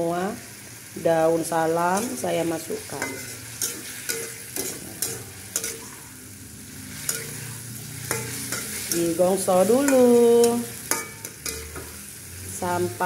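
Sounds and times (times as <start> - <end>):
paste sizzling in a wok: 0.0 - 13.0
metal spoon scraping and clinking pan: 2.8 - 6.1, 6.9 - 12.2.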